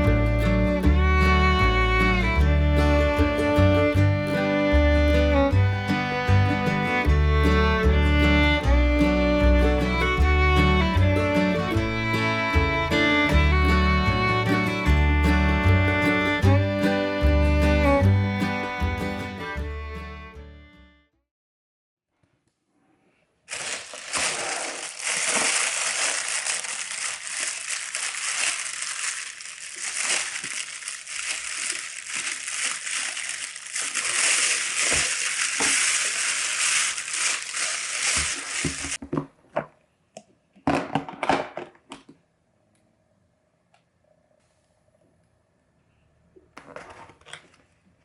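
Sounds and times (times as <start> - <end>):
beef sizzling in a hot pan: 23.5 - 39.0.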